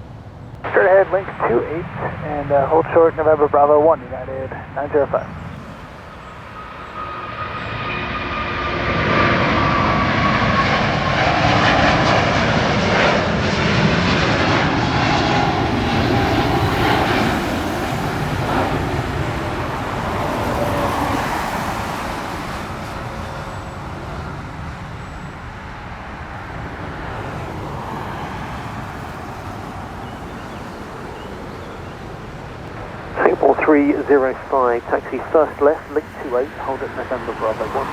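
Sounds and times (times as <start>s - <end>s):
jet engine roar: 0.0s - 37.9s.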